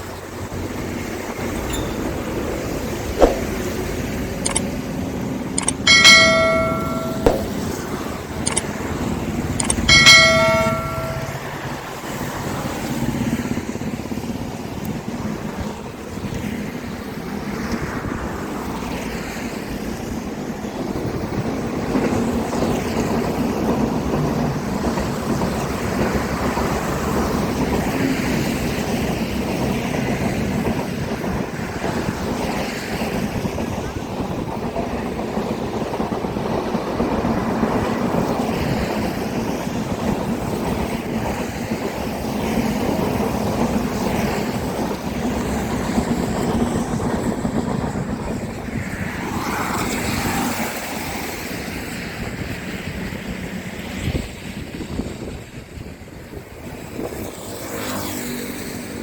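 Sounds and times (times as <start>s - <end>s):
short ringing tones: 1.5s - 3.6s, 5.6s - 7.8s, 9.6s - 11.6s.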